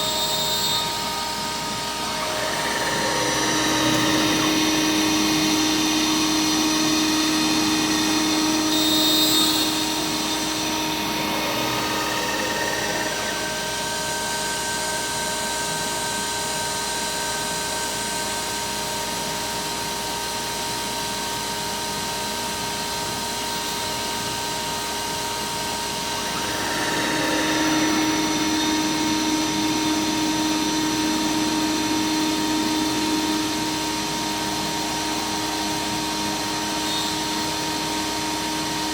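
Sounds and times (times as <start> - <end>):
router spindle milling: 0.1 - 15.7, 25.6 - 37.2.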